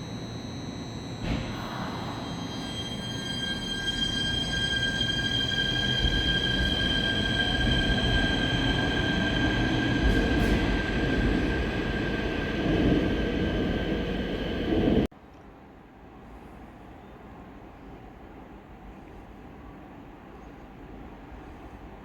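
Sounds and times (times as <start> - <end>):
electric train rumble: 0.0 - 15.1
high-pitched whine: 0.0 - 15.1.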